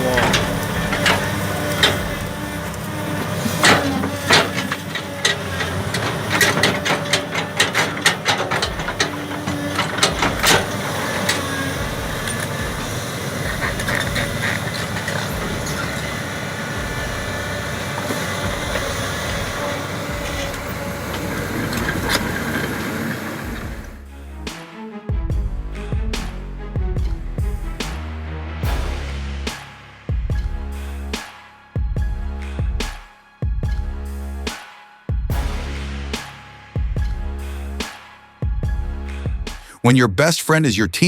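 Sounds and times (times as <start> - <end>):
sharp knocks: 0.0 - 24.0
heavy machine running: 0.0 - 24.1.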